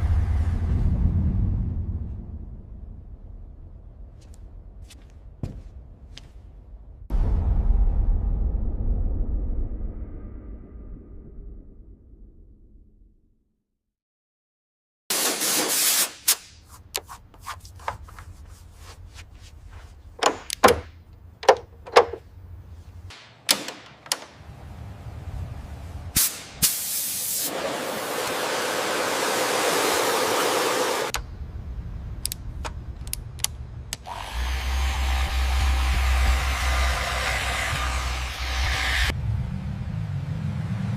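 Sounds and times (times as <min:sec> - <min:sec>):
low hum: 0:00.0 - 0:13.6, 0:31.1 - 0:40.9
hissing spray bursts: 0:15.1 - 0:16.5, 0:26.2 - 0:31.2
sharp clicks and knocks: 0:20.2 - 0:22.3, 0:23.1 - 0:24.4.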